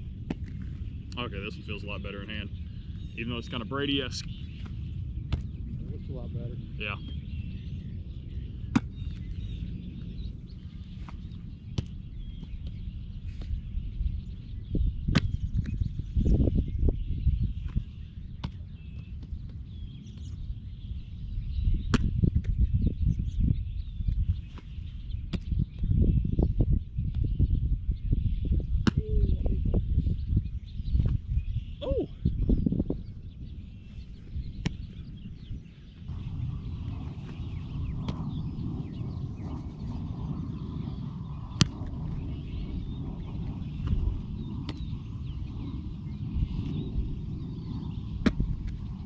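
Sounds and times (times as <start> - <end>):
birds chirping: 0.0 - 49.0
steady low rumble: 0.0 - 49.0
wind buffeting microphone: 0.0 - 49.0
sharp smacks: 21.9 - 22.5, 41.6 - 41.9.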